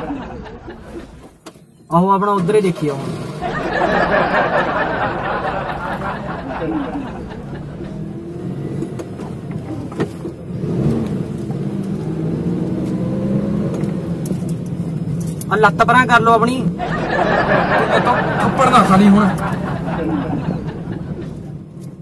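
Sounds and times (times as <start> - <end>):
car engine revving: 2.7 - 22.0.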